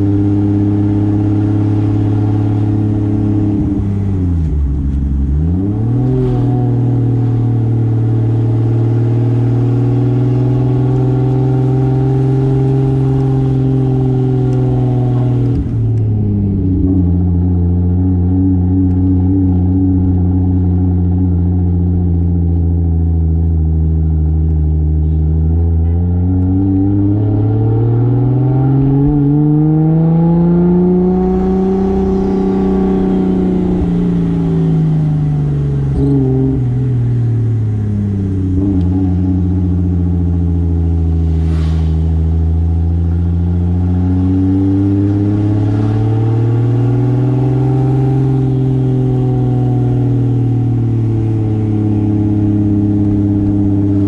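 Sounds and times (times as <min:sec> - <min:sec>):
car engine accelerating: 0:00.0 - 0:54.0
brief hiss: 0:41.2 - 0:42.6.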